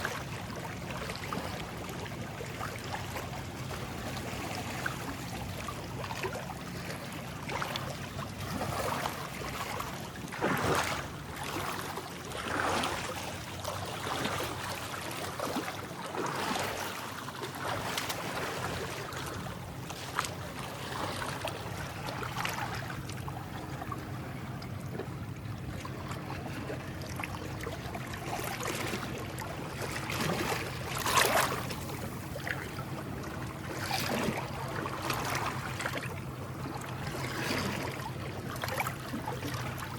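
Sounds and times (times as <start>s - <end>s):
waves lapping on shore: 0.0s - 39.9s
low hum: 18.3s - 39.9s.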